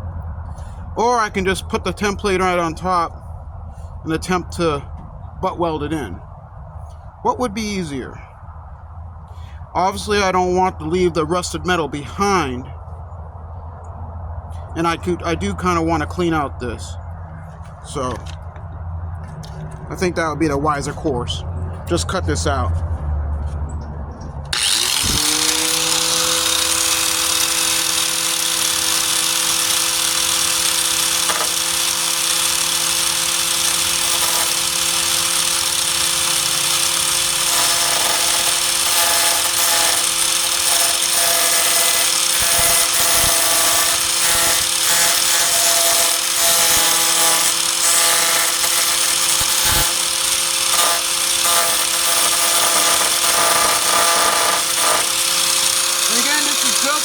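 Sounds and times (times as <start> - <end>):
angle grinder cutting sheet steel: 24.5 - 57.0.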